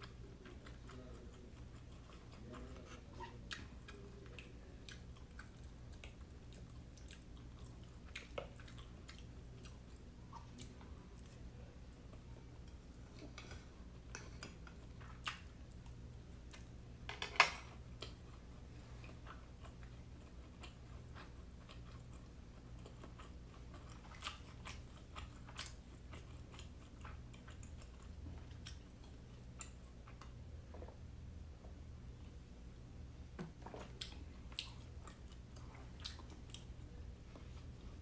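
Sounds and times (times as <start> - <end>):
person chewing: 0.0 - 11.4, 18.0 - 31.1, 33.5 - 38.0.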